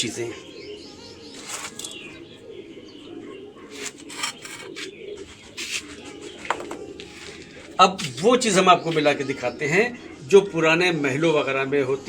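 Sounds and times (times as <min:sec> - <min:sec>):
pigeons cooing: 0:00.0 - 0:11.0
rustles and scrapes: 0:01.3 - 0:02.1, 0:03.7 - 0:08.2.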